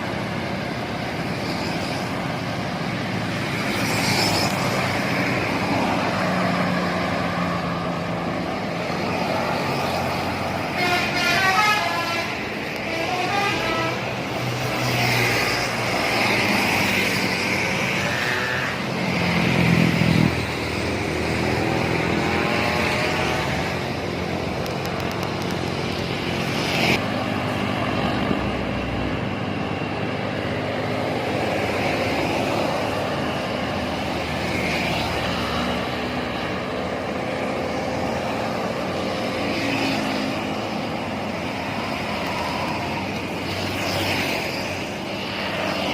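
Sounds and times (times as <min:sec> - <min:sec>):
heavy vehicles passing on highway: 0:00.0 - 0:45.9
vehicle horn: 0:10.7 - 0:14.1.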